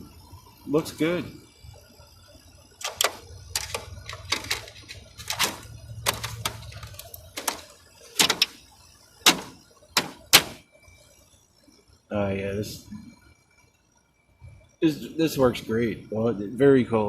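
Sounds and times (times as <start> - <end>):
plastic case clacks and knocks: 2.8 - 8.6.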